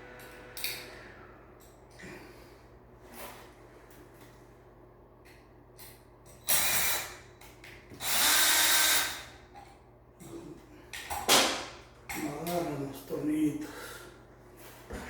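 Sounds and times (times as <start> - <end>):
power drill driving screws: 8.0 - 9.3.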